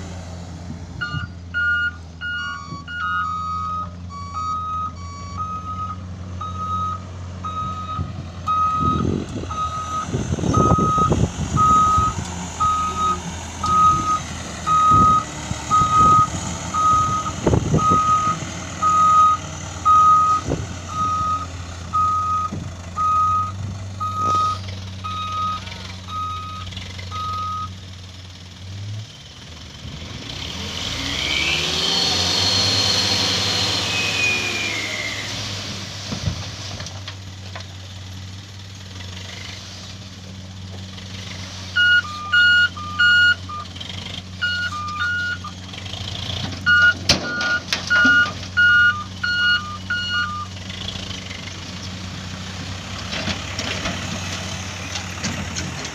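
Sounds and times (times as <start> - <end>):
truck engine running: 0.0 - 55.9
single-tone reversing beeper: 1.0 - 27.7, 41.8 - 43.7, 44.4 - 45.5, 46.7 - 50.5.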